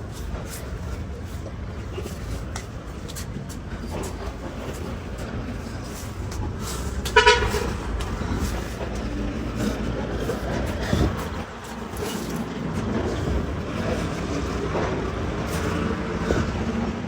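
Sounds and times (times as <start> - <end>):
steady low rumble: 0.0 - 17.0
short loud horn toot: 7.1 - 7.7.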